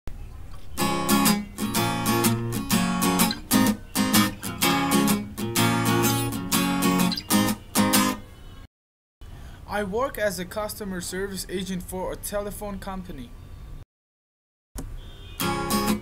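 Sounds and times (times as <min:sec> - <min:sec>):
guitar strumming chords: 0:00.8 - 0:08.2, 0:15.4 - 0:16.0.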